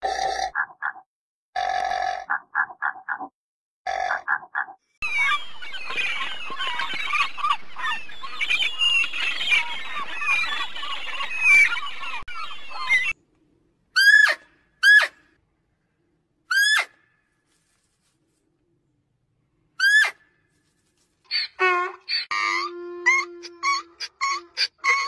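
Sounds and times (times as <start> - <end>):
flock of birds chattering: 5.0 - 13.2.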